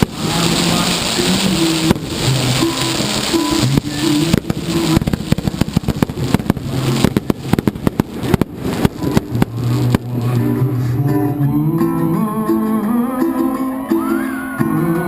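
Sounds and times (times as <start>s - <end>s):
fireworks bangs and crackles: 0.0s - 11.5s
recorded music: 0.0s - 15.0s.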